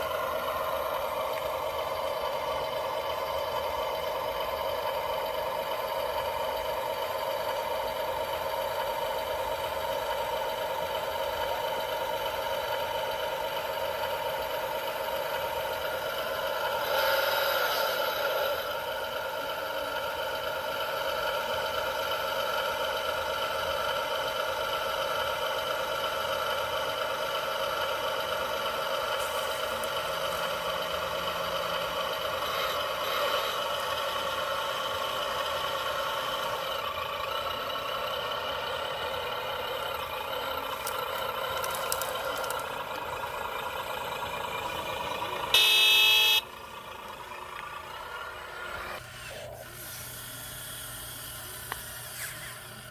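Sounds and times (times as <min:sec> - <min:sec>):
toy truck engine sound: 0:00.0 - 0:52.9
short loud horn toot: 0:45.6 - 0:46.4.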